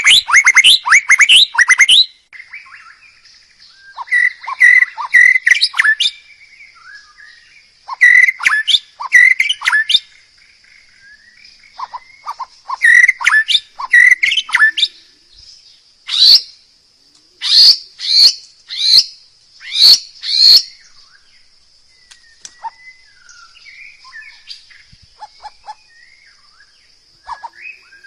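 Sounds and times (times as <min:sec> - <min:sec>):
songbird chirping: 0:00.0 - 0:28.0.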